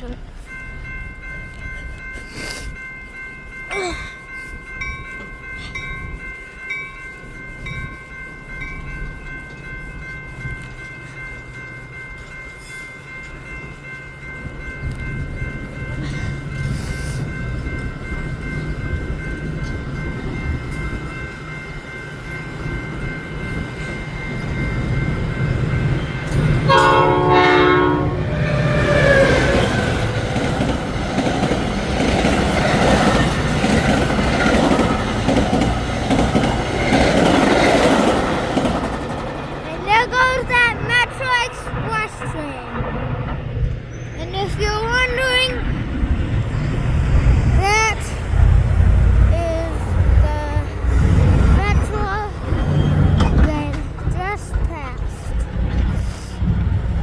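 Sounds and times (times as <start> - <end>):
high squeal of train: 0.0 - 57.0
train rumble: 0.0 - 57.0
locomotive horn blast: 26.7 - 29.4.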